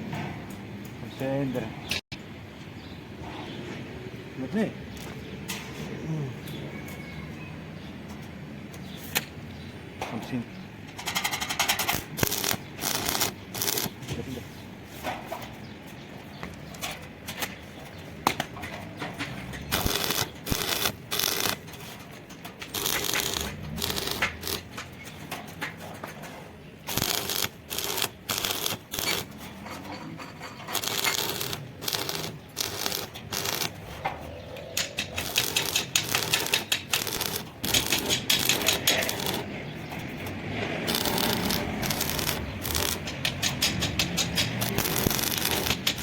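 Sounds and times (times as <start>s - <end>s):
arc welder crackling: 11.1s - 14.3s, 18.2s - 26.2s, 26.8s - 29.5s, 30.5s - 46.0s.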